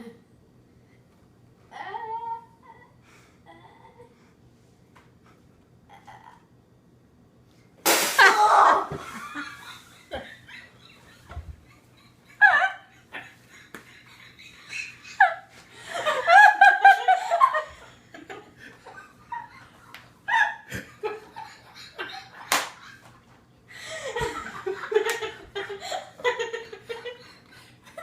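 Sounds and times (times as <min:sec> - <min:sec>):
sharp slap: 0:07.8 - 0:08.5, 0:22.5 - 0:22.8
people laughing hard: 0:08.2 - 0:23.1, 0:23.8 - 0:28.0.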